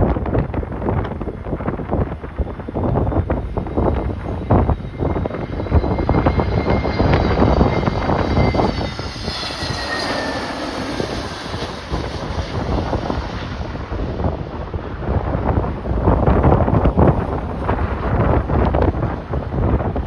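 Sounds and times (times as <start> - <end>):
wind buffeting microphone: 0.0 - 20.0
jet engines whining: 0.1 - 20.0.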